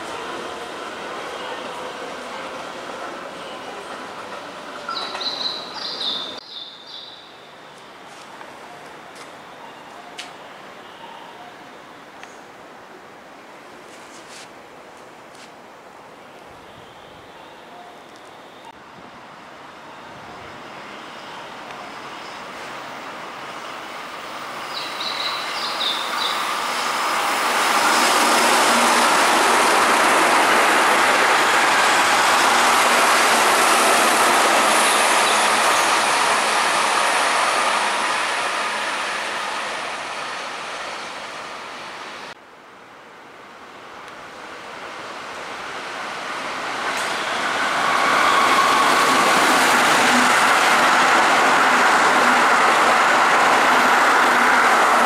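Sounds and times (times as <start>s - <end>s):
electric train passing: 0.0s - 6.4s, 17.3s - 42.4s, 44.3s - 55.0s
train running past: 0.0s - 6.4s, 17.6s - 42.4s, 44.5s - 55.0s.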